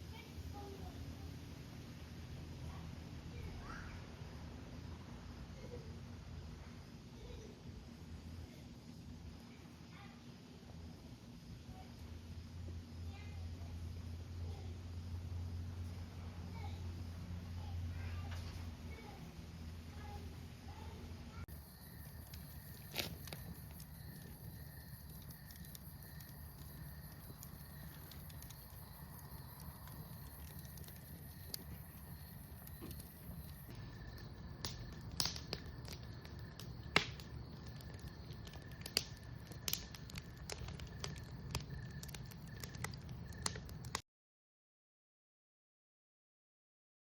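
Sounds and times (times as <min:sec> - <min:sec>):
bonfire crackling: 0:00.0 - 0:44.0
insect chirring: 0:21.5 - 0:44.0
wood pops: 0:32.6 - 0:44.0.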